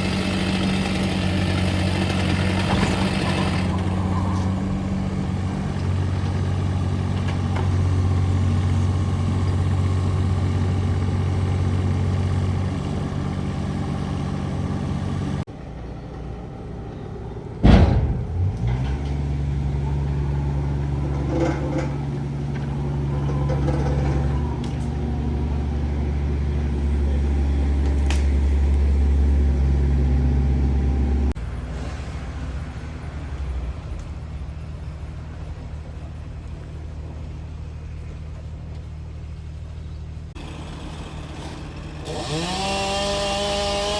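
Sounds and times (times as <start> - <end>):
heavy machinery engines humming: 0.0 - 43.9
heavy thud: 17.6 - 18.8.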